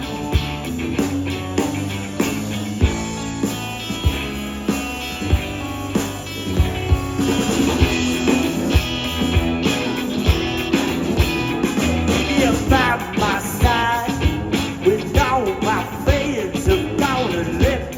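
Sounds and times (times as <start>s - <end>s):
bass guitar: 0.0s - 17.9s
drum kit steady beat: 0.0s - 17.9s
electric guitar: 0.0s - 17.9s.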